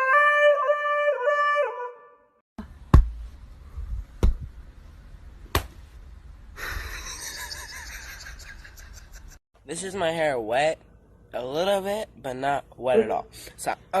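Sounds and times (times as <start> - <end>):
sharp thumps: 2.9 - 3.4.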